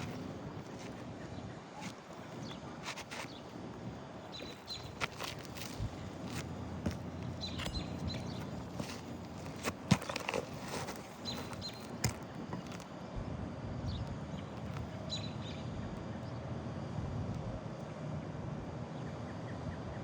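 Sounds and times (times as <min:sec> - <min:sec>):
outdoor background: 0:00.0 - 0:20.0.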